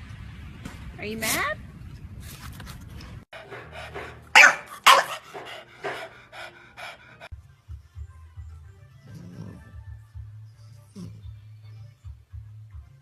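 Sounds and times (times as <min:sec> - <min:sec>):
dog panting: 0:03.3 - 0:07.3
dog huffing: 0:03.4 - 0:07.3.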